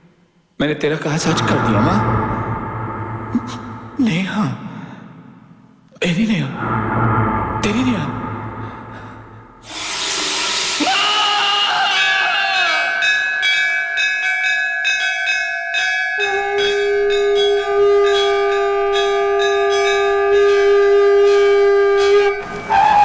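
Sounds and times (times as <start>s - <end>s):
bell-like chiming tones: 1.2s - 4.3s, 6.5s - 9.6s, 12.6s - 20.7s
low sustained note: 1.2s - 4.3s, 6.5s - 10.8s.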